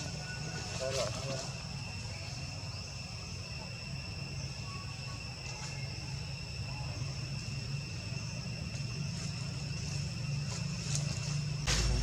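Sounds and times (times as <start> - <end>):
insects trilling: 0.0 - 12.0
low even rumble: 11.7 - 12.0.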